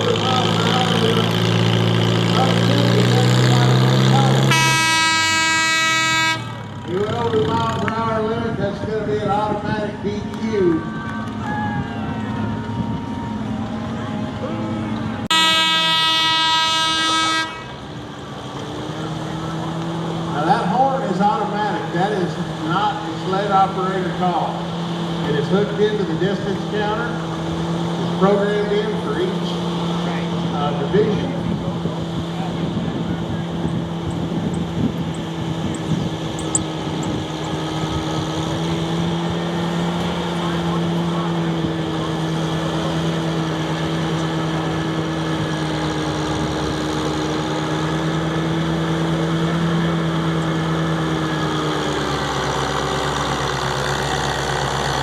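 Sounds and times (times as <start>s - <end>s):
tractor engine running: 0.0s - 55.0s
horn tone: 4.4s - 6.7s, 12.0s - 17.8s.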